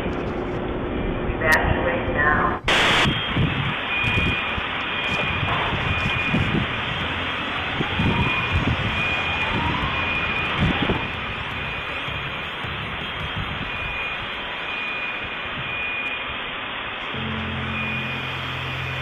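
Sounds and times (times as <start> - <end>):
loud steady rushing noise: 0.0 - 19.0
faint high beep: 3.0 - 7.5, 8.2 - 16.3, 17.1 - 19.0.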